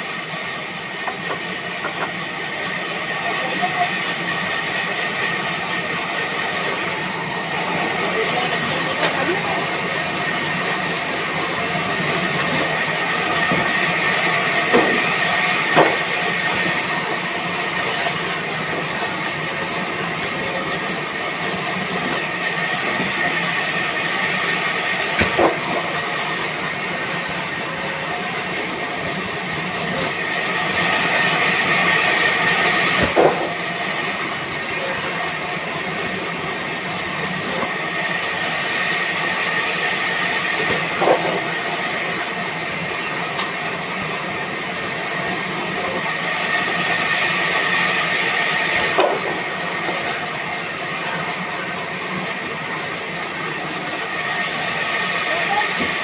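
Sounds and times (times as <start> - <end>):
band saw whining: 0.0 - 56.0.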